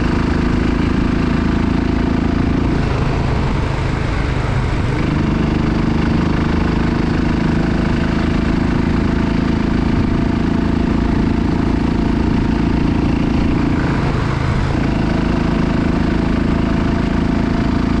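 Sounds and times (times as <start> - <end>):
motorcycle engine running: 0.0 - 18.0
wind and road noise: 0.0 - 18.0.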